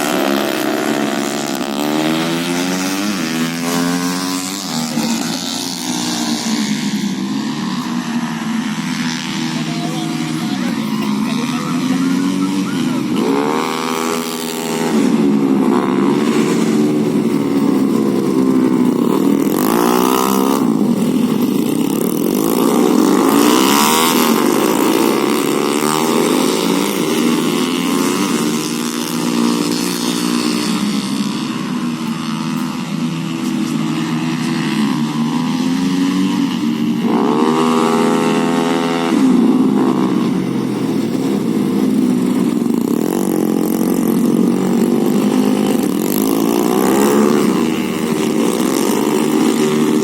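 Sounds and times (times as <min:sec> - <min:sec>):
motorcycle engine revving: 0:00.0 - 0:50.0.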